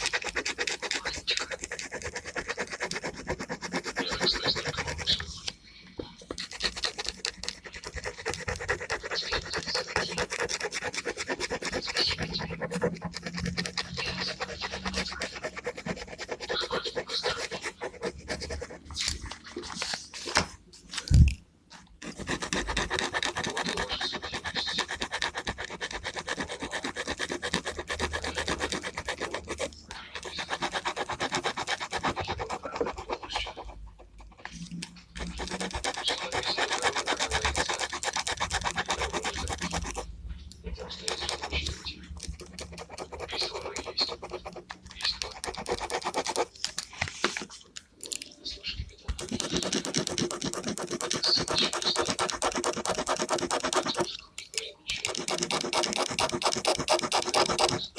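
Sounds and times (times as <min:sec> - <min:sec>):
pen scratching on paper: 0:00.0 - 0:20.6, 0:21.9 - 0:48.3, 0:49.0 - 0:57.9.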